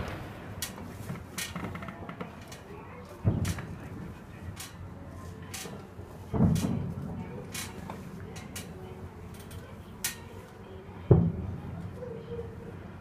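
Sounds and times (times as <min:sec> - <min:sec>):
distant firework booms: 0:00.0 - 0:01.2
firework cracks: 0:00.0 - 0:01.7.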